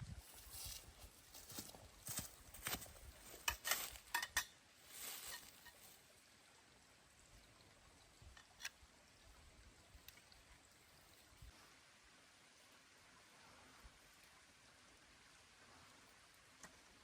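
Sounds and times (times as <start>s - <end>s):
rustle: 0.0s - 6.4s.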